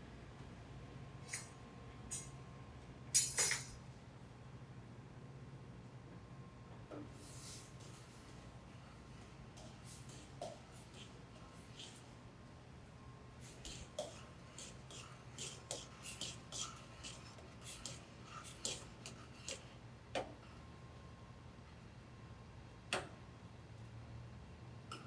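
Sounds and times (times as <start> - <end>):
kitchen utensils clicking and tapping: 3.2 - 3.8.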